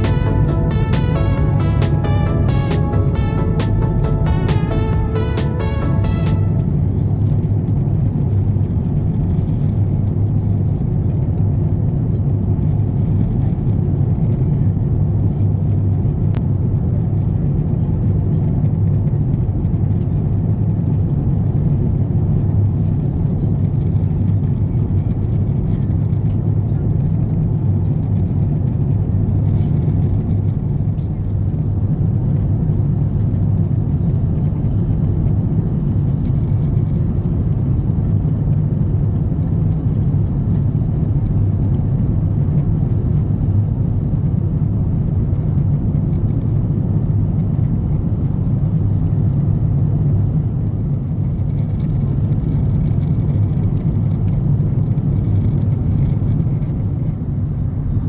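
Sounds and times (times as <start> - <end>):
airliner cabin engine rumble: 16.8 - 58.0.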